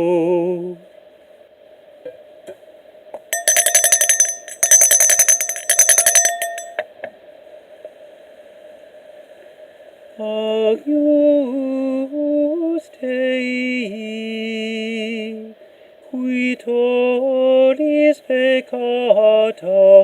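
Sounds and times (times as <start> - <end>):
altar bells jangling: 3.4 - 6.8.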